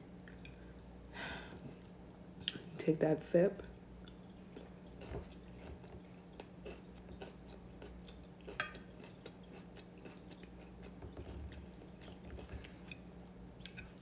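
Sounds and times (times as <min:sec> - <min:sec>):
steady low hum: 0:00.0 - 0:14.0
chewing food: 0:03.7 - 0:14.0.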